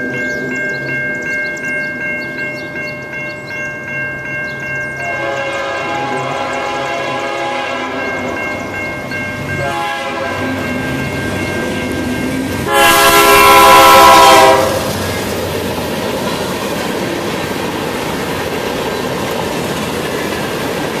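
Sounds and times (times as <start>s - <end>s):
locomotive air horn: 5.0s - 8.4s, 9.6s - 10.8s, 12.6s - 15.0s
freight cars rumbling and clattering: 14.8s - 21.0s.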